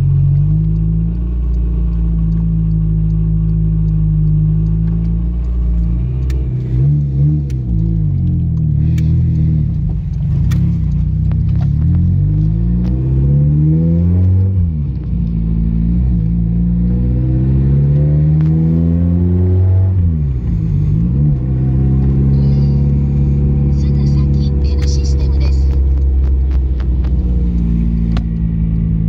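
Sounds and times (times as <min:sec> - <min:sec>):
car engine accelerating through gears: 0:00.0 - 0:29.0.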